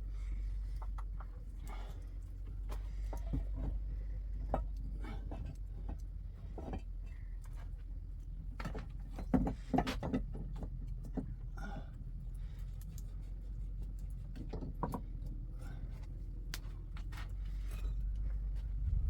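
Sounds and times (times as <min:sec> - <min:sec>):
steady low rumble: 0:17.8 - 0:19.0.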